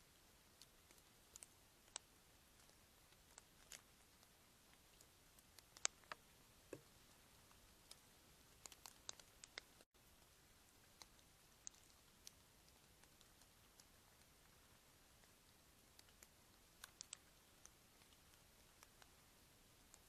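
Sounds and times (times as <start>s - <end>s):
sharp clicks and ticks: 4.9s - 6.9s, 8.6s - 9.9s, 16.0s - 19.1s.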